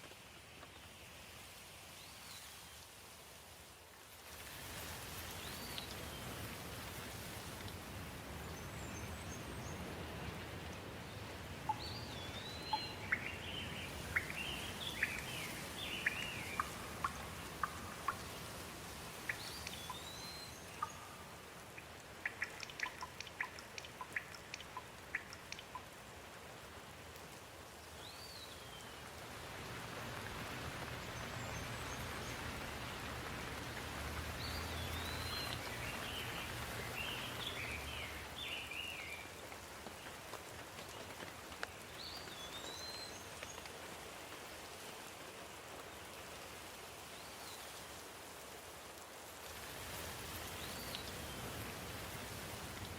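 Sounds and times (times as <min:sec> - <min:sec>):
steady rain falling: 0:00.0 - 0:52.9
birds chirping: 0:11.7 - 0:25.9, 0:34.2 - 0:39.1
drops ticking on a surface: 0:14.1 - 0:18.5, 0:21.7 - 0:26.0.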